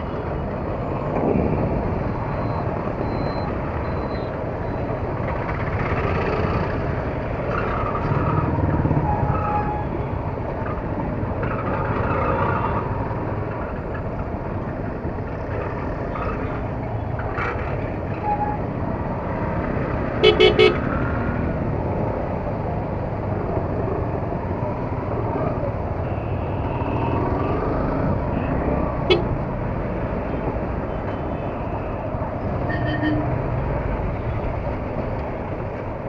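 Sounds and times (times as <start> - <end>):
wind noise: 0.0 - 4.0.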